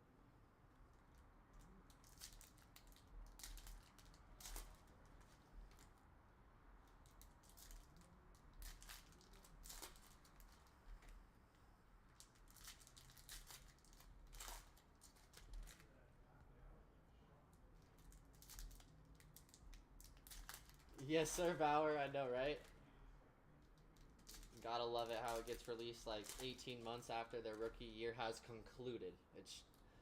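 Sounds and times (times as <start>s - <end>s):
card-pack wrappers rustling: 1.9s - 5.9s, 7.2s - 11.1s, 12.2s - 15.8s, 18.0s - 21.5s, 24.0s - 27.9s
trading cards rustling and clicking: 23.6s - 27.9s.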